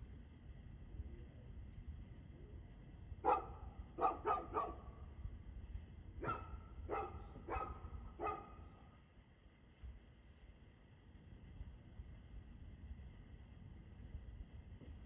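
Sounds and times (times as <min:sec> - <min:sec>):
dog barking: 0:03.2 - 0:04.9, 0:06.2 - 0:08.7.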